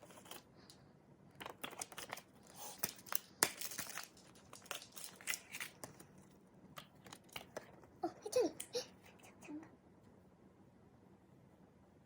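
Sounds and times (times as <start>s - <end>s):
packaging crinkling and tearing: 1.5s - 6.1s.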